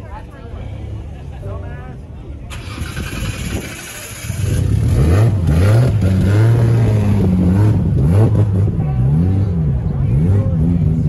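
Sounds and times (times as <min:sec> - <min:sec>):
car engine revving: 0:02.6 - 0:11.0.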